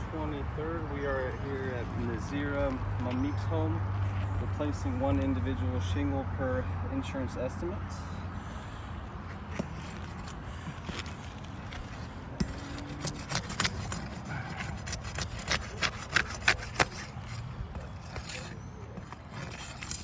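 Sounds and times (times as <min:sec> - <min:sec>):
tools scraping roof shingles: 0:09.3 - 0:20.0.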